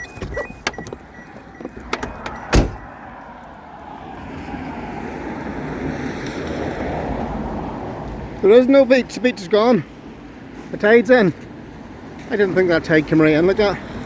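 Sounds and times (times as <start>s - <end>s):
door clicks: 1.6s - 2.9s
van door thump: 1.7s - 2.9s.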